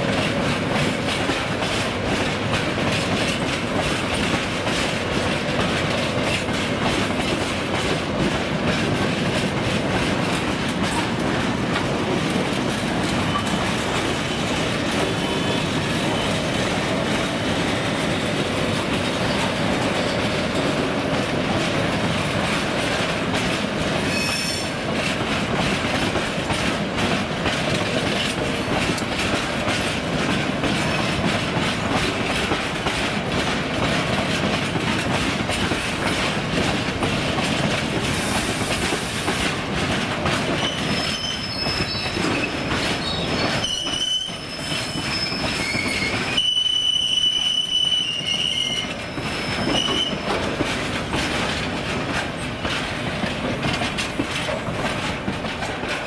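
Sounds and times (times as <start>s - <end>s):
train wheels clicking over rail joints: 0.0s - 56.0s
high wheel squeal: 24.1s - 24.7s, 40.6s - 50.3s.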